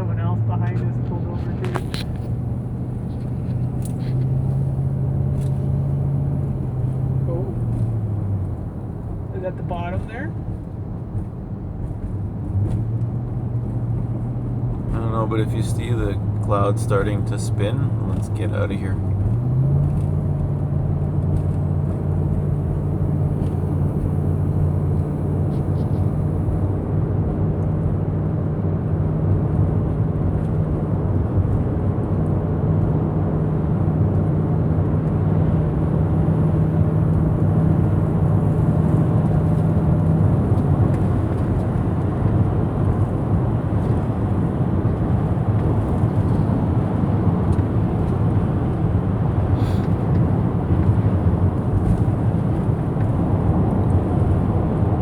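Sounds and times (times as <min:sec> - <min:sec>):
truck engine humming: 0:00.0 - 0:09.6, 0:13.0 - 0:27.7, 0:32.3 - 0:55.0.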